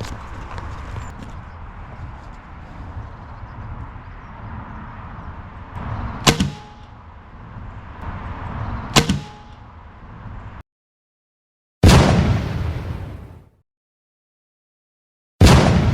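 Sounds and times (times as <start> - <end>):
air rifle shot crack: 6.2 - 7.0, 9.0 - 9.6, 11.8 - 13.3, 15.4 - 15.9.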